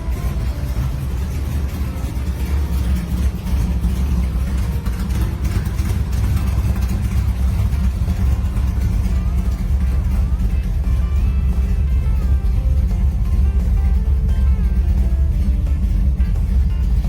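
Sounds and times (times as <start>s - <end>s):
car engine exhaust rumble: 0.0s - 17.0s.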